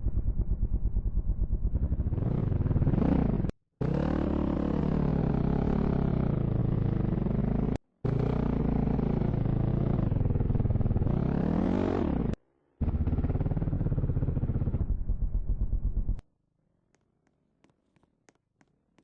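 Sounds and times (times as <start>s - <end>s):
dirt bike engine revving: 2.1s - 14.8s.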